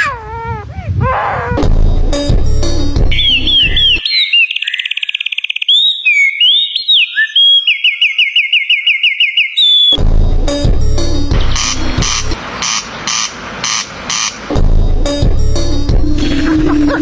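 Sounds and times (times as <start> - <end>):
music: 1.6 - 4.0, 10.0 - 12.4, 14.5 - 17.0
songbird singing whistles: 3.1 - 10.0.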